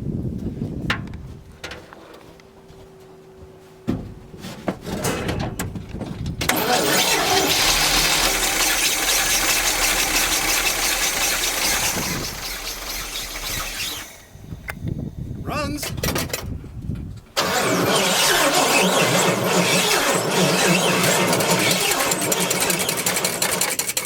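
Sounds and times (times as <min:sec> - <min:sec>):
engine starter cranking: 0:06.4 - 0:15.0, 0:17.4 - 0:24.0
truck engine running: 0:06.5 - 0:15.3, 0:17.4 - 0:23.8.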